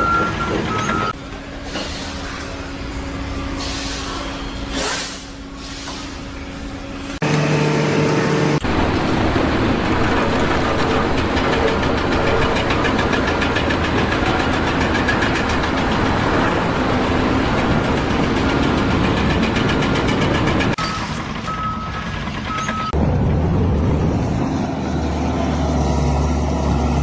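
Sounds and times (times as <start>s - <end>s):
engine-driven machinery rattling: 8.6s - 23.0s.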